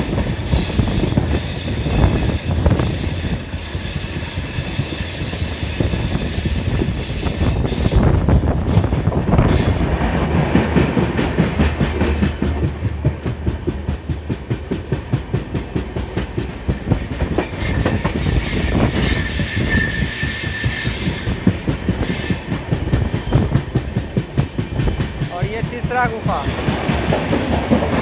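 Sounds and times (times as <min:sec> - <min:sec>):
train wheels clattering: 0:00.0 - 0:28.0
high wheel squeal: 0:17.6 - 0:22.5.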